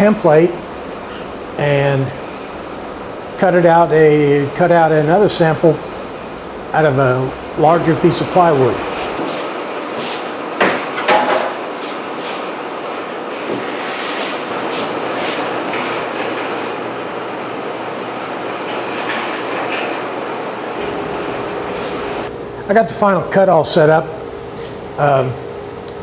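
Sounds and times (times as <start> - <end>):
power saw cutting plywood: 8.0 - 16.4
sharp knocks: 9.2 - 12.4.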